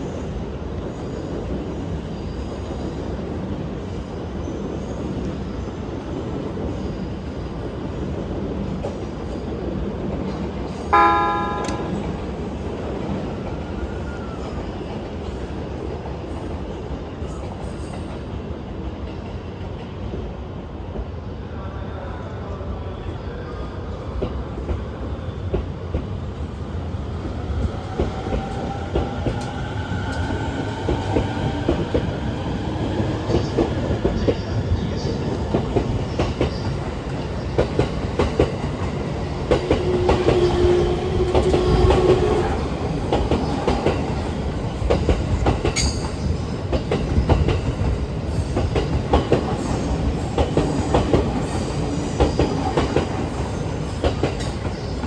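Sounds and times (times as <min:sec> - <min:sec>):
train rumble: 0:23.0 - 0:55.0.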